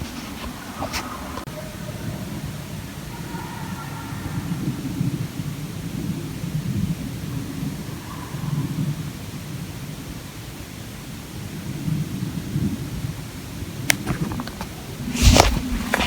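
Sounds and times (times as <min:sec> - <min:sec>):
crackling knock: 0:13.9 - 0:16.0
sharp clicks: 0:13.9 - 0:16.0.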